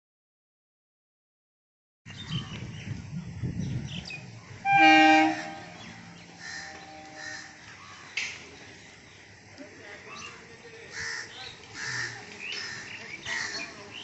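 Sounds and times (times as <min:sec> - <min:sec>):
train rumbling through station: 0:02.1 - 0:14.0
train horn blast: 0:04.6 - 0:07.6.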